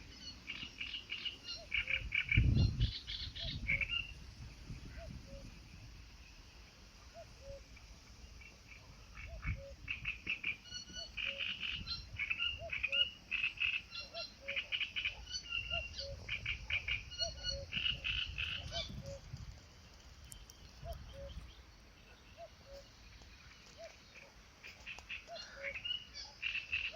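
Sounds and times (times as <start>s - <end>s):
frogs rattling croaks: 0.2s - 4.2s, 7.0s - 21.7s, 22.4s - 26.9s.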